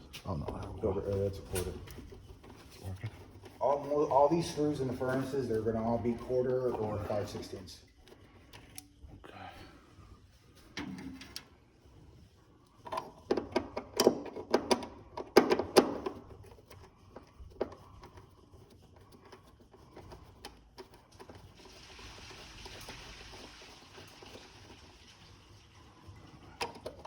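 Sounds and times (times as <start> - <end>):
hand tools clicking and knocking: 12.8 - 18.2.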